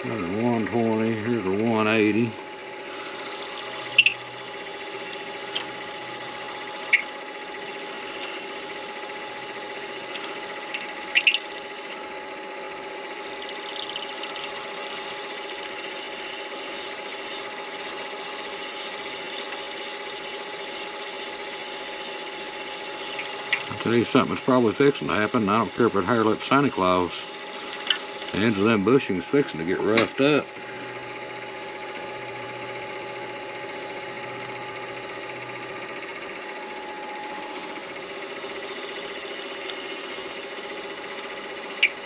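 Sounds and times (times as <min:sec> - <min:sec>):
lathe motor humming: 0:00.0 - 0:42.0
sandpaper rubbing spinning acrylic: 0:02.9 - 0:12.0, 0:12.8 - 0:30.9, 0:37.9 - 0:42.0.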